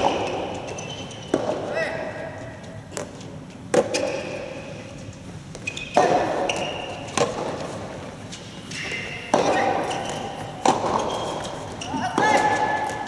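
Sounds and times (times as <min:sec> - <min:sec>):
tennis ball struck by rackets: 0:09.2 - 0:11.5.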